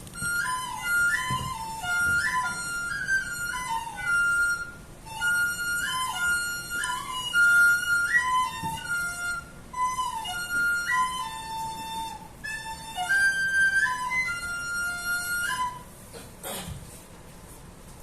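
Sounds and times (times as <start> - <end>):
flute playing slow melody: 0.0 - 16.0.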